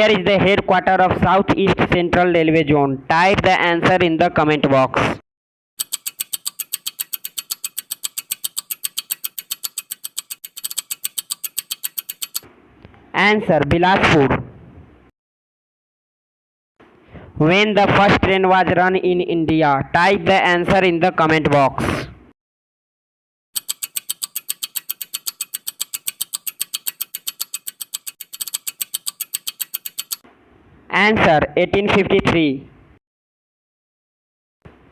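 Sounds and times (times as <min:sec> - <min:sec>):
rapid timer ticking: 0:05.8 - 0:12.5, 0:23.6 - 0:30.2.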